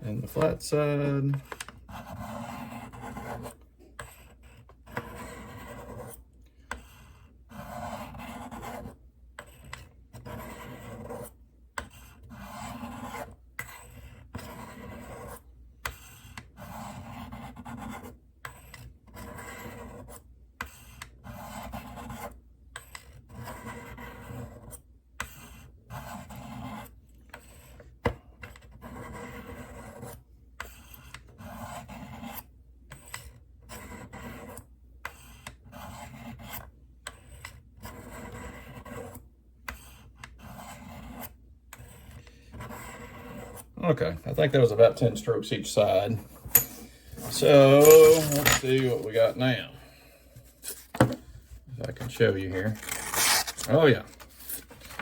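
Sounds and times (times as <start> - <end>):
knife rasping on ceramic rods: 45.8 - 51.2, 51.8 - 55.0.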